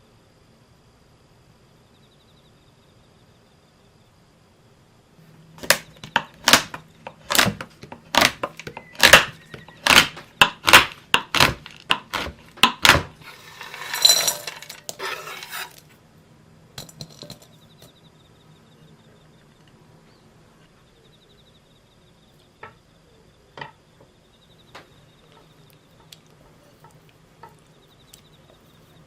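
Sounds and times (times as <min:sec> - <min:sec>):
chocolate cracking: 0:05.6 - 0:15.9.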